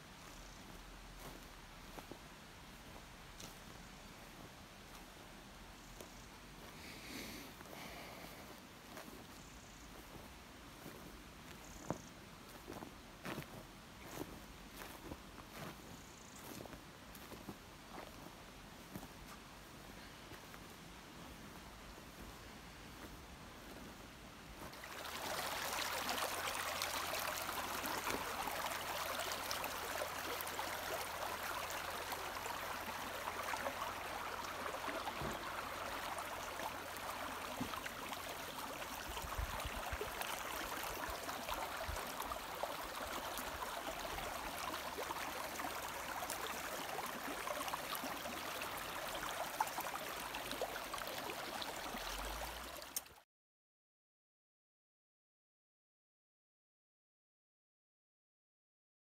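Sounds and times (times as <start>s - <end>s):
stream water flowing: 24.6s - 53.2s.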